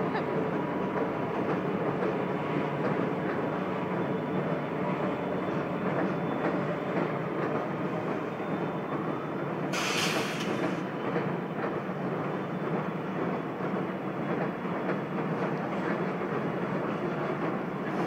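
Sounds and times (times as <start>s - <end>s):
diesel locomotives rumbling: 0.0s - 18.0s
short burst of hiss: 9.7s - 10.8s.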